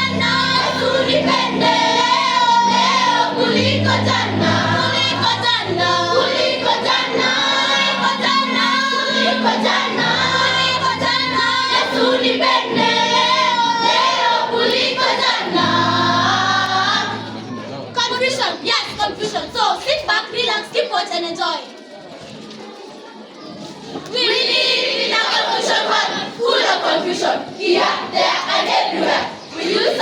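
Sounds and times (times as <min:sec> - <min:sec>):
choir singing: 0:00.0 - 0:19.7, 0:24.1 - 0:30.0.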